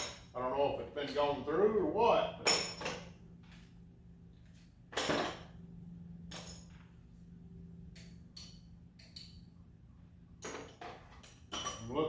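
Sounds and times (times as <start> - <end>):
low steady hum: 0.0 - 12.0
metal tools clinking and knocking: 2.4 - 3.1, 10.4 - 11.9.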